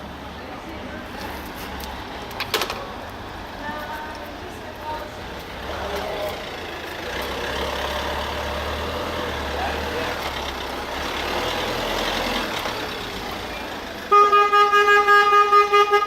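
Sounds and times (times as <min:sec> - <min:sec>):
vehicle engine running: 0:00.0 - 0:15.6
street traffic: 0:00.0 - 0:16.0
car horn short honks: 0:14.1 - 0:16.0.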